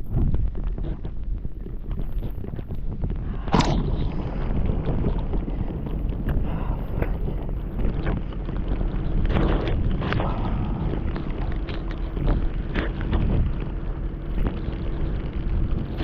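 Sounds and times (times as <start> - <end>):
wind buffeting microphone: 0.0 - 16.0
sharp noisy hit: 3.4 - 5.1.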